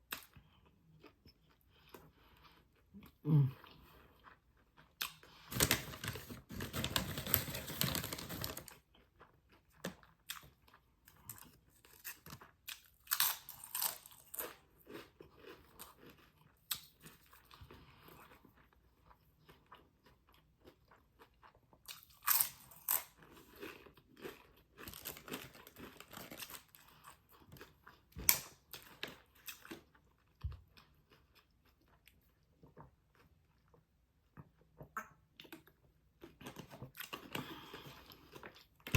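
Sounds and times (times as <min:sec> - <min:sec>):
crunching food: 0:03.8 - 0:34.7.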